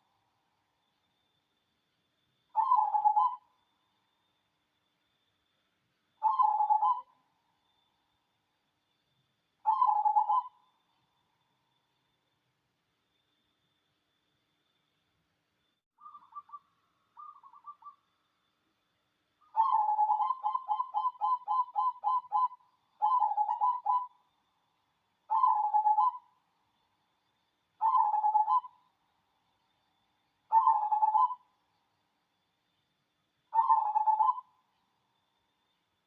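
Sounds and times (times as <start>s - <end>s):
dove cooing: 2.6s - 3.4s, 6.2s - 7.1s, 9.7s - 10.6s, 19.6s - 24.1s, 25.3s - 26.2s, 27.8s - 28.7s, 30.5s - 31.4s, 33.6s - 34.5s.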